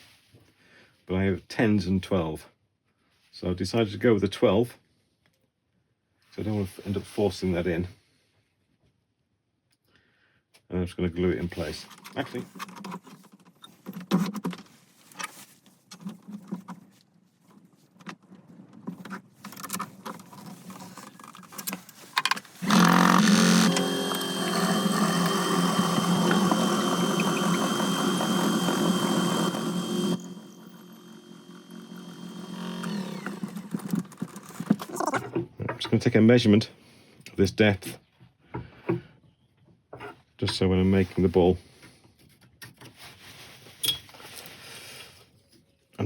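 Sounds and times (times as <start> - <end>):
power tool motor whine: 22.5 - 35.2.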